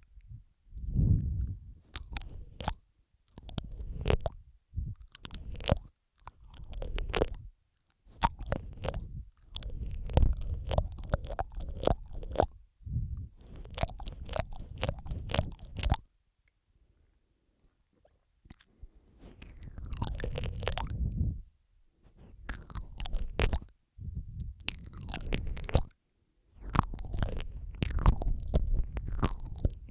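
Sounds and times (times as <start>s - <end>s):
mouth clicks and smacks: 0.0s - 16.6s, 17.6s - 29.9s.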